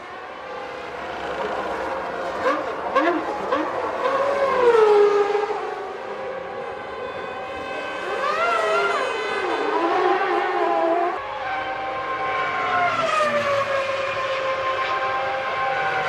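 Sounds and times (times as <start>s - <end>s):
racing car engines screaming: 0.0s - 16.0s.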